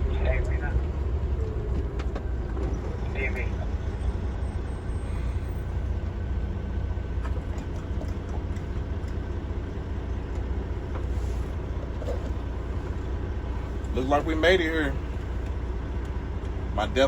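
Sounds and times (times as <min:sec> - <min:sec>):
faint whine: 0:00.0 - 0:06.6
truck diesel engine droning: 0:00.0 - 0:17.0.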